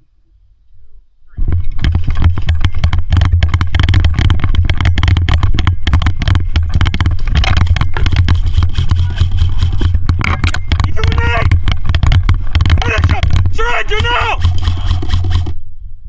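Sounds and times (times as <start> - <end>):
gearbox motor hum: 1.4 - 15.7
airsoft gun firing full auto: 10.6 - 15.6.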